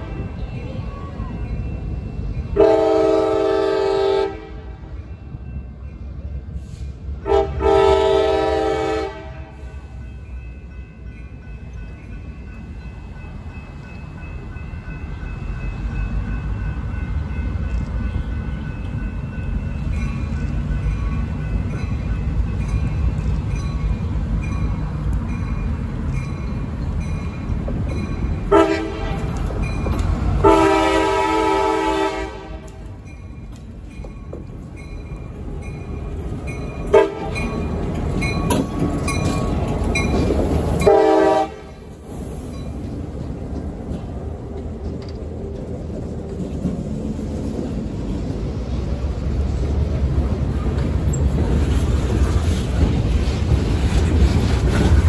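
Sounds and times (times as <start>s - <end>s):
diesel locomotives rumbling: 0.0s - 55.0s
train air horn blasts: 2.6s - 4.9s, 6.6s - 9.9s, 28.5s - 29.4s, 30.4s - 32.8s, 36.9s - 37.4s, 40.8s - 41.8s.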